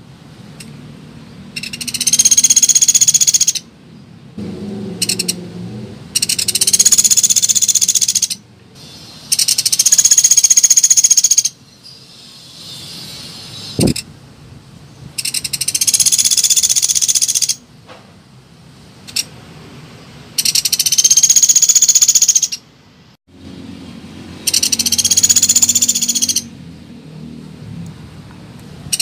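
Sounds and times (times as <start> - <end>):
high-pitched bird trills: 1.6 - 3.6, 6.2 - 14.0, 15.2 - 17.6, 20.4 - 22.6, 24.4 - 26.5.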